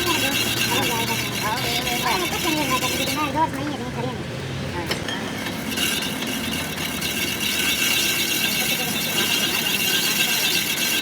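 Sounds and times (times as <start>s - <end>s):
tool rasping on metal: 0.0s - 3.6s, 5.3s - 11.0s.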